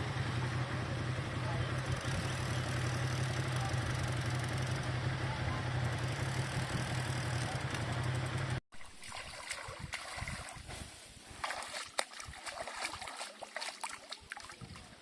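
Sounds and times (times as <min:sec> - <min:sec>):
vehicle engine hum: 0:00.0 - 0:08.6.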